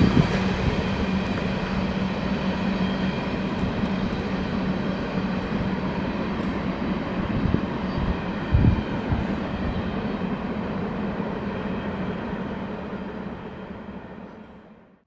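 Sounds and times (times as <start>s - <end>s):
train rumbling past: 0.0s - 15.0s.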